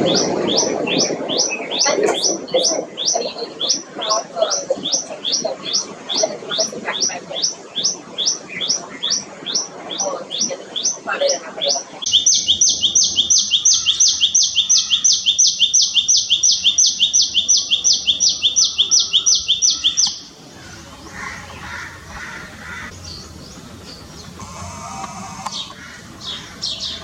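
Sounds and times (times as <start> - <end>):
bird calling sharp high notes: 12.1 - 20.4.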